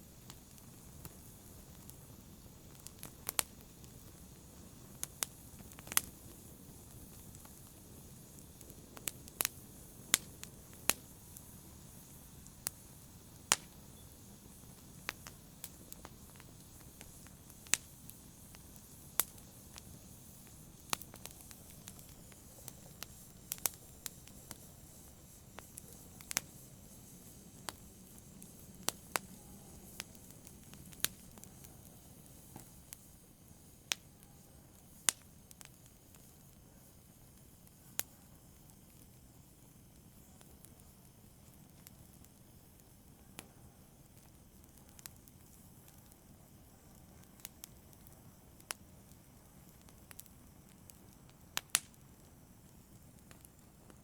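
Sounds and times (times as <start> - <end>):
faint low hiss: 0.0 - 54.0
fire popping: 0.0 - 54.0.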